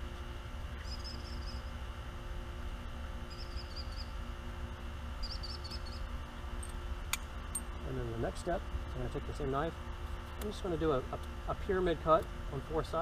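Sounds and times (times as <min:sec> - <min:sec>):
small bird chirping: 0:00.8 - 0:01.8, 0:03.3 - 0:04.2, 0:05.2 - 0:06.1.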